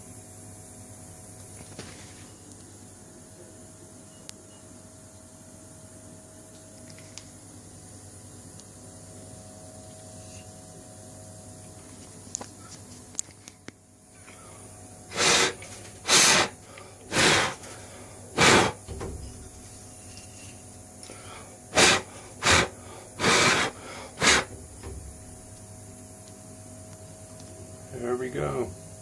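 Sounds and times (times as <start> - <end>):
air blasts hissing: 15.1 - 19.8, 21.1 - 25.7.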